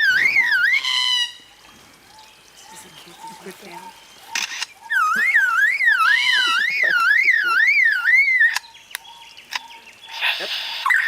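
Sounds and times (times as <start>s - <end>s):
bird whistling siren-like tone: 4.9s - 8.7s.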